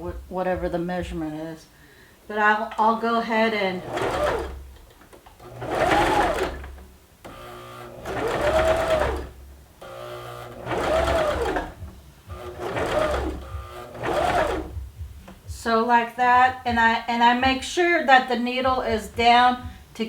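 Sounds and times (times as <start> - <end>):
sewing machine stitching: 3.6 - 15.4.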